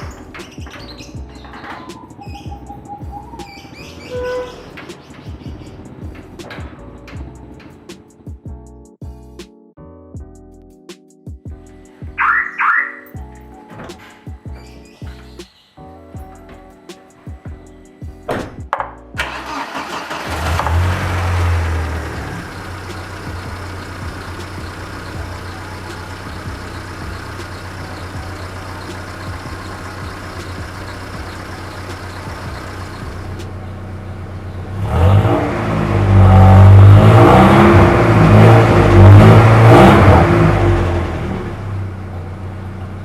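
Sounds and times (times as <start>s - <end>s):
car engine revving: 19.2s - 43.0s
car engine starting and idling: 19.2s - 43.0s.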